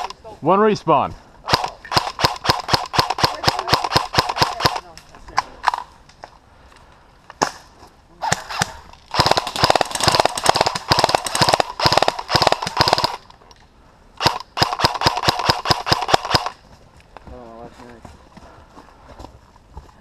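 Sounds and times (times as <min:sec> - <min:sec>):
airsoft gun shots: 0:08.2 - 0:13.2.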